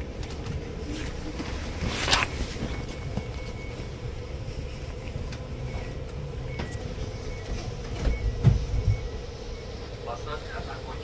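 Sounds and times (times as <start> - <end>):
train interior rumble and hum: 0.0 - 11.0.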